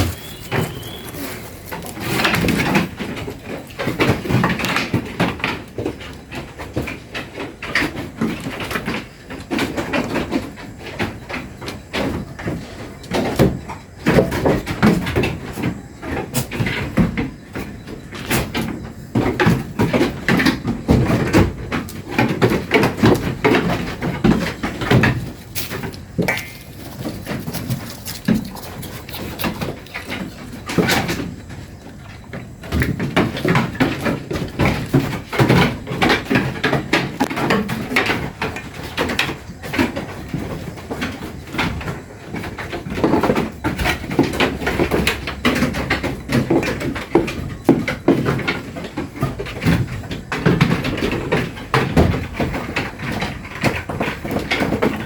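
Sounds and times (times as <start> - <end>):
knocking and clattering: 18.2 - 55.0.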